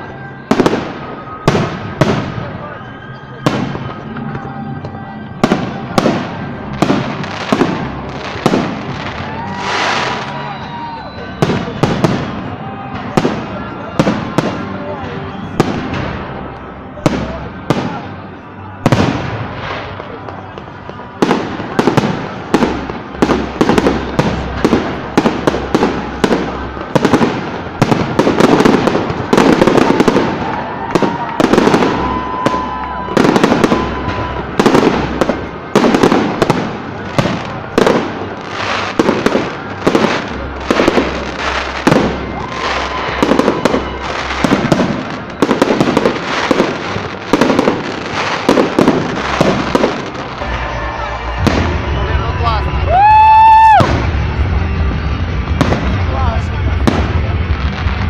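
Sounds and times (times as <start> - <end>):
fireworks bursting and crackling: 0.0 - 58.0.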